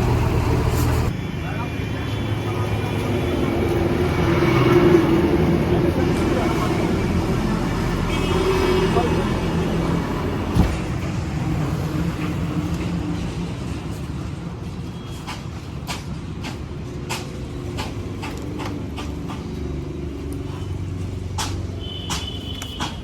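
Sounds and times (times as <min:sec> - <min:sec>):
diesel engine running: 0:00.0 - 0:01.1
sharp clicks and knocks: 0:21.3 - 0:23.0.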